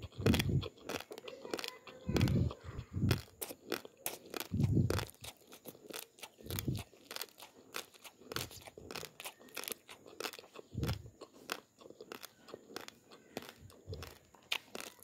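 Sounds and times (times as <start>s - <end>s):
rice grains crunching: 0.0s - 15.0s
dull low thumps: 4.5s - 5.0s.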